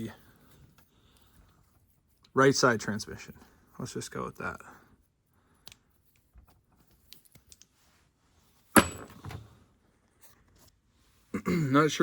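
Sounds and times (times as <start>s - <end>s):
sharp metallic clank: 8.8s - 9.5s
soft knocks: 8.8s - 9.5s.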